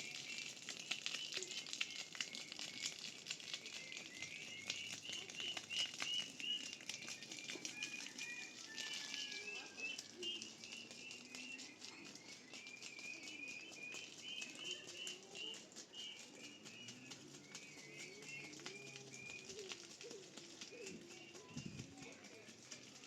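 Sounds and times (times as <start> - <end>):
small birds chirping: 0.0 - 8.8, 9.4 - 23.0
low wavering cooing: 18.1 - 21.8.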